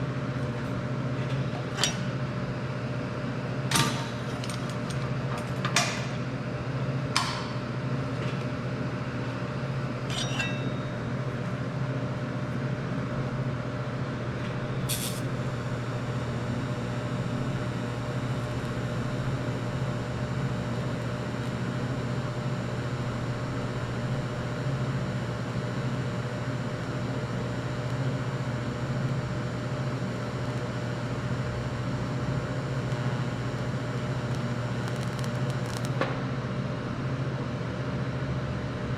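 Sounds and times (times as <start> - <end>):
welder humming and hissing: 13.0 - 37.0.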